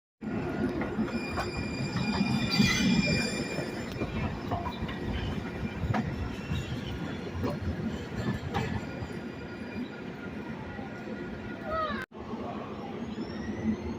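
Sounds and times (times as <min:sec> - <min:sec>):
railroad cars rumbling: 0:00.2 - 0:13.9
high wheel squeal: 0:00.9 - 0:04.4.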